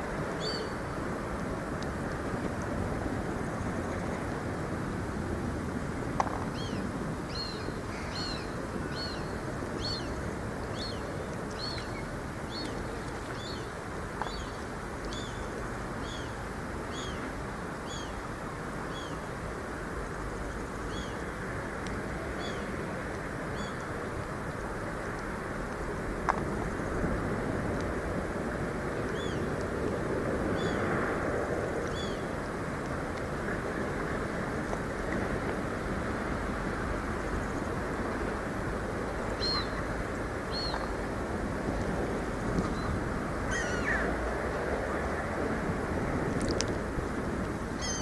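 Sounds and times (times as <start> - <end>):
faint clicks: 46.4 - 46.8
bird high hooked call: 47.8 - 48.0.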